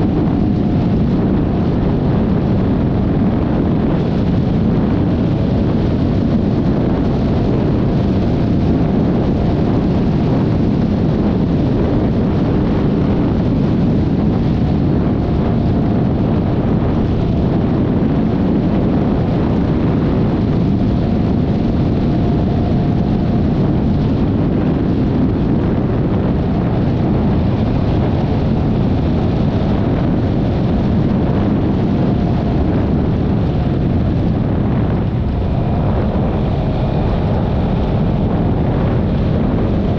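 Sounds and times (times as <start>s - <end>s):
faint steady whine: 0.0s - 39.9s
wind rushing over microphone: 0.0s - 39.9s.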